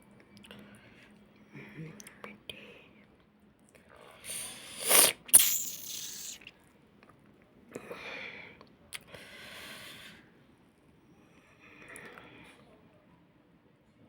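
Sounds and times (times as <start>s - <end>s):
soft breathy hisses: 4.2s - 6.5s
sneeze-like burst: 4.3s - 6.5s.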